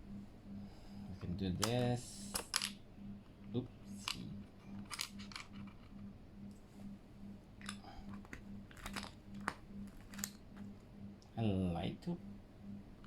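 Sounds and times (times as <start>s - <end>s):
faint pulsing low hum: 0.0s - 13.0s
plastic keycap clicks: 1.6s - 2.8s, 4.8s - 5.5s, 7.6s - 10.3s.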